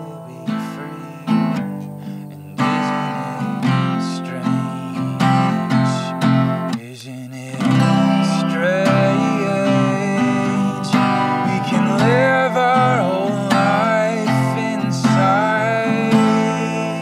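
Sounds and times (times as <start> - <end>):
acoustic guitar strumming: 0.0 - 17.0
sliding melody line: 7.6 - 17.0.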